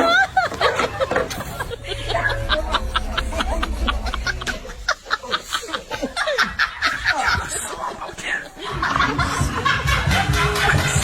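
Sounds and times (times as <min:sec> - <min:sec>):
low steady hum: 0:01.3 - 0:06.8.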